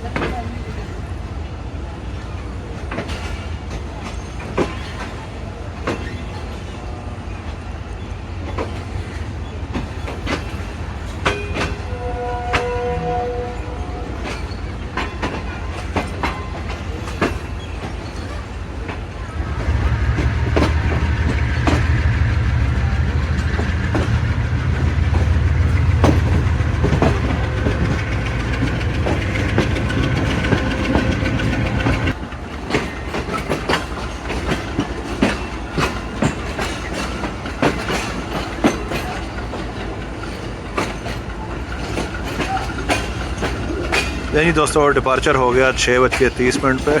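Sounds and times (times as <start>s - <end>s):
train low drone: 0.0s - 47.0s
train rolling rumble: 0.0s - 47.0s
wheels clacking over rail joints: 2.7s - 47.0s.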